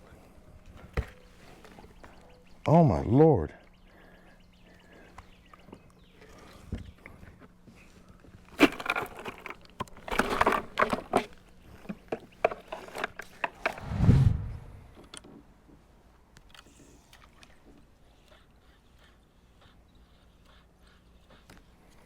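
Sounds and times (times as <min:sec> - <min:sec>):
gear clattering on plastic kayak: 0:08.5 - 0:13.8.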